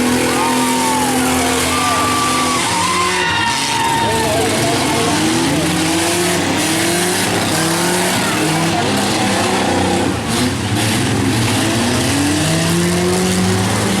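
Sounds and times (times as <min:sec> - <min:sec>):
engine and tyre noise: 0:00.0 - 0:14.0
engines revving hard: 0:00.0 - 0:14.0.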